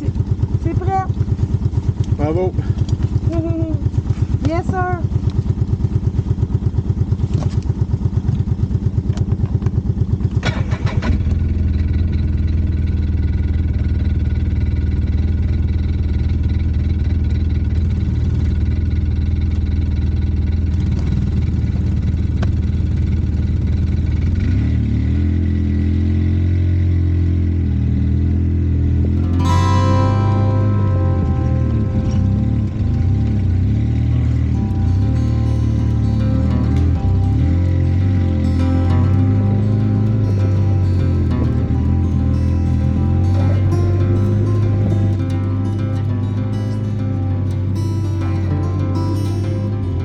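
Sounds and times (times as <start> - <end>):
off-road vehicle engine: 0.0 - 50.0.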